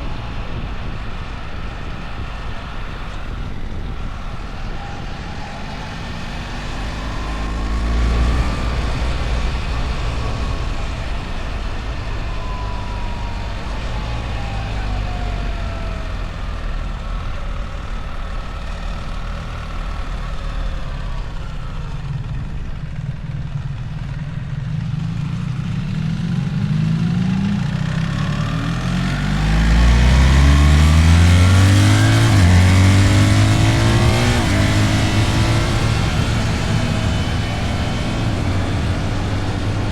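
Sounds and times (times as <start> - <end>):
wind noise: 0.0 - 19.6, 28.1 - 39.9
motorcycle engine accelerating: 0.0 - 39.9.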